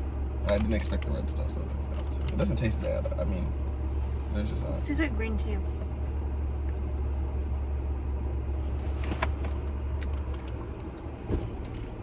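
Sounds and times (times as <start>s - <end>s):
car engine idling: 0.0s - 12.0s
light clicks and taps: 0.4s - 3.0s.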